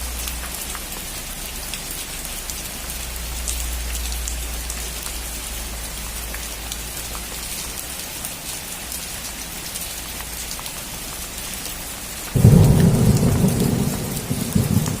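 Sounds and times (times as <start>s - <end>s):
rain falling on a roof: 0.0s - 15.0s
thunder rumbling: 12.4s - 15.0s.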